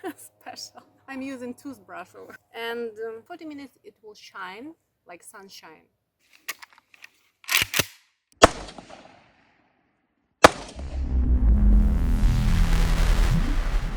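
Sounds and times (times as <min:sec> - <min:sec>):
rifle action clicks and snaps: 0:06.3 - 0:08.1
gunshot bang: 0:08.4 - 0:09.3, 0:10.4 - 0:10.9
loud noise with deep rumble: 0:10.8 - 0:13.9.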